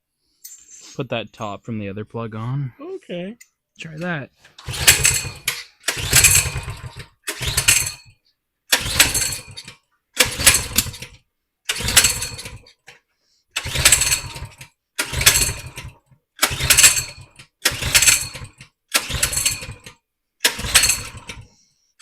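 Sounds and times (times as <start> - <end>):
minibike engine pull-start cranking: 4.5 - 8.1, 8.7 - 12.9, 13.5 - 21.6.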